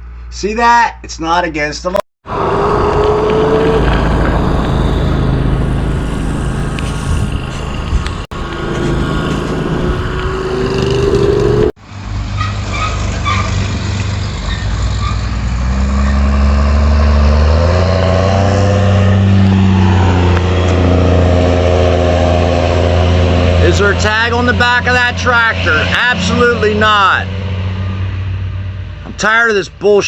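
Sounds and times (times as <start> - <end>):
tractor engine running: 2.3 - 12.4.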